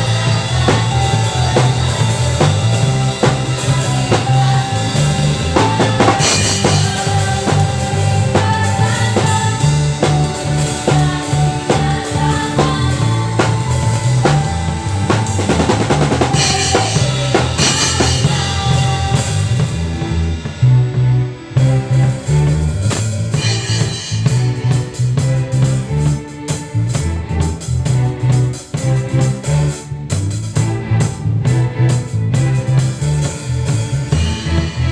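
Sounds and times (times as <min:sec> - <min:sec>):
bass notes: 0:00.0 - 0:34.9
drum kit: 0:00.0 - 0:34.9
live band playing: 0:00.0 - 0:34.9.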